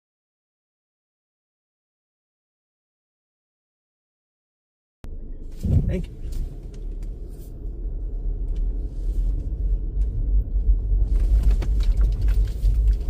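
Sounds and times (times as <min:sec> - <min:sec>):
car driving rumble from inside: 0:05.0 - 0:13.0.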